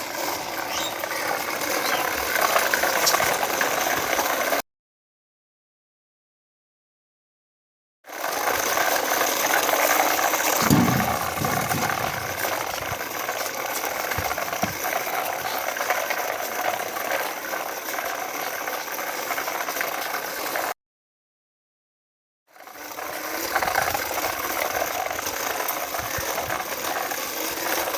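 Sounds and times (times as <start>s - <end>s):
toy tractor gears rattling: 0.0s - 4.6s.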